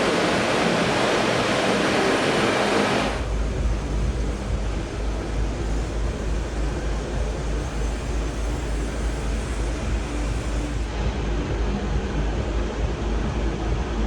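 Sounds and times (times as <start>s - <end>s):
steady ambient noise: 0.0s - 14.0s
deep fluctuating low rumble: 3.1s - 14.0s.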